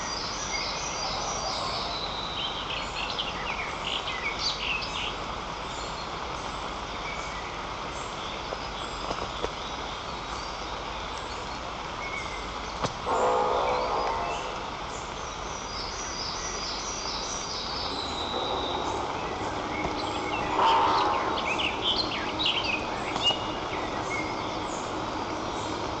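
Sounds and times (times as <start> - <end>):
songbirds chirping and trilling: 0.0 - 26.0
steady background hiss: 0.0 - 26.0
low bird call: 13.1 - 25.8.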